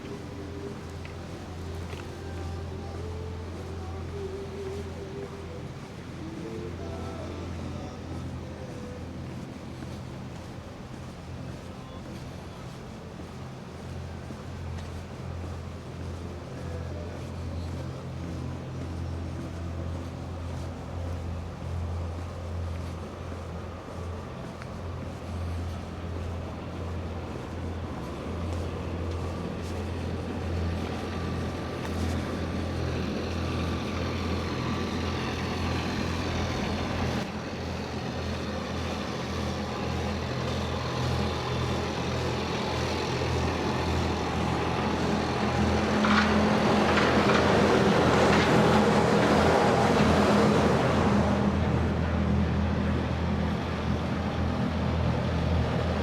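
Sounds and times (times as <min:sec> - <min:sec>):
large vehicle engine passing: 0:24.7 - 0:56.0.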